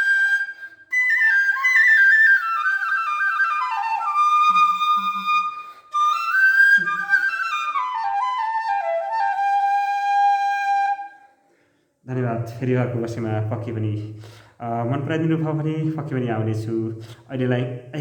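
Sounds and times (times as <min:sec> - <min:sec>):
bamboo flute melody: 0:00.0 - 0:11.4.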